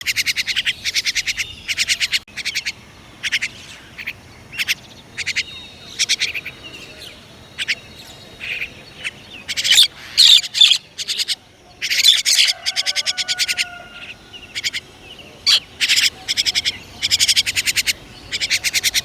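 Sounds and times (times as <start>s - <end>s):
songbirds chirping rapid high notes: 0.0s - 19.0s
thin whistled bird calls: 0.0s - 19.0s.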